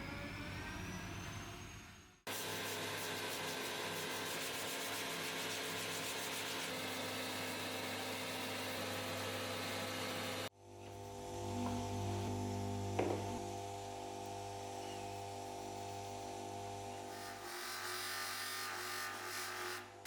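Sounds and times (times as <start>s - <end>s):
small electric motor humming: 5.0s - 20.0s.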